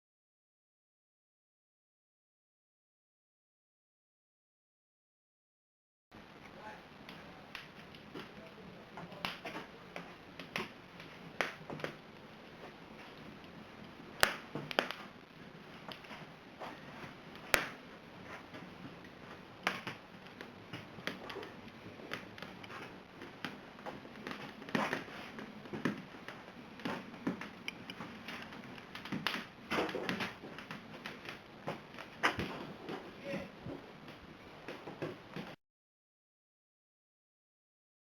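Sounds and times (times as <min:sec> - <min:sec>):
fire crackling: 0:06.2 - 0:35.6
sharp fire pops: 0:14.1 - 0:16.2, 0:17.1 - 0:17.9.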